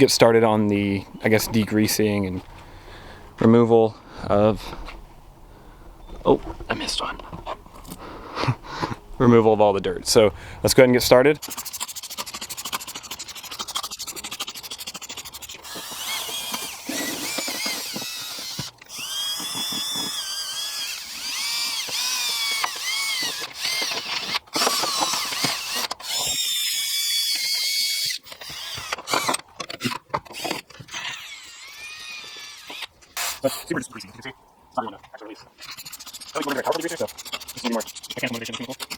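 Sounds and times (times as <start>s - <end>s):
brush scrubbing: 11.4s - 16.4s, 35.6s - 38.9s
drill motor whine: 15.6s - 29.4s, 30.4s - 33.3s.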